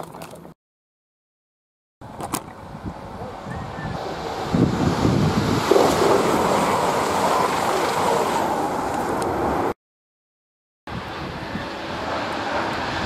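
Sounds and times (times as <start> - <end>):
train passing at speed: 3.2 - 9.7, 10.9 - 13.0.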